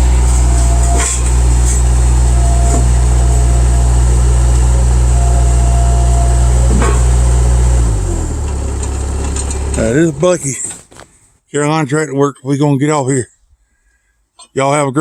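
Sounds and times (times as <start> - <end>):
faint whine: 0.0 - 10.7
diesel engine running: 0.0 - 11.0.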